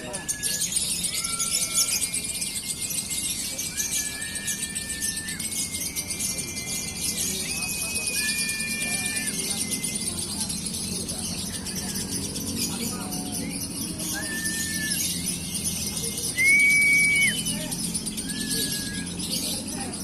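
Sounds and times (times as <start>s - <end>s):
short whistled notes: 0.0s - 2.4s, 3.5s - 10.5s, 15.9s - 19.7s
lovebird chattering trill: 0.0s - 20.0s.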